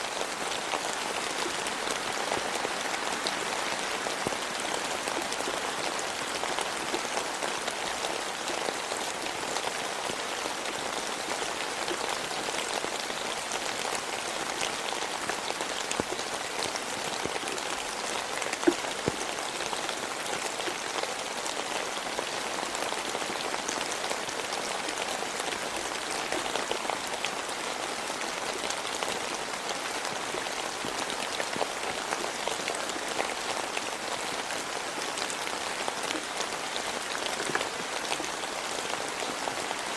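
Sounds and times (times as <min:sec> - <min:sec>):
steady rain falling: 0:00.0 - 0:39.9
raindrops ticking close by: 0:00.1 - 0:39.9.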